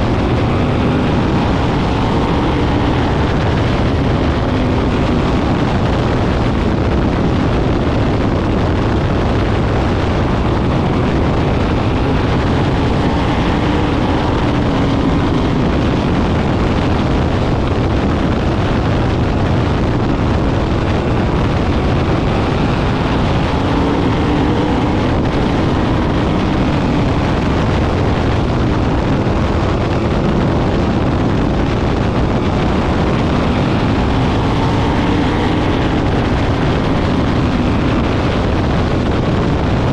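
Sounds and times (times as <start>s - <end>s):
racing car engines passing: 0.0s - 5.7s, 10.3s - 16.9s, 32.0s - 38.6s.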